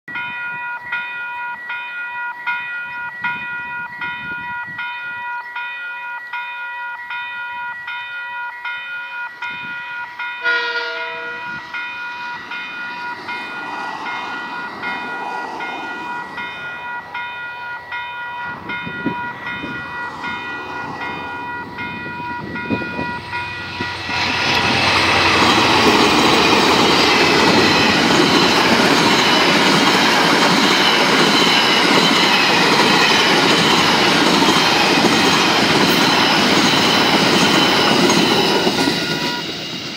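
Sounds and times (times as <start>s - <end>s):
level crossing bells ringing: 0.1s - 39.7s
train horn blast: 10.4s - 11.7s
train wagons rolling over crossing: 10.9s - 39.9s.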